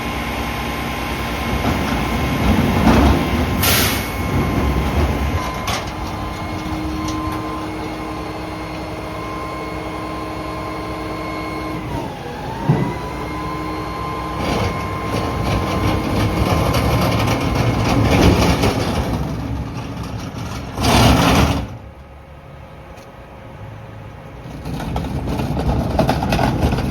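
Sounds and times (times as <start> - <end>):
garbage truck engine whine: 0.0 - 26.9.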